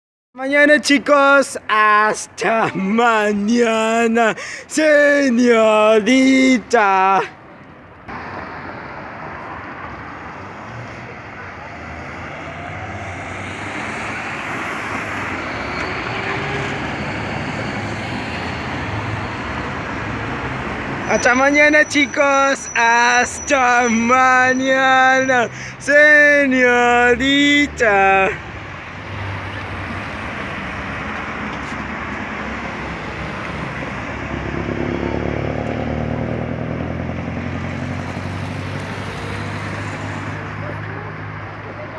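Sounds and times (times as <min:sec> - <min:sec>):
road noise hiss: 0:00.7 - 0:41.9
coach engine humming: 0:26.7 - 0:41.9.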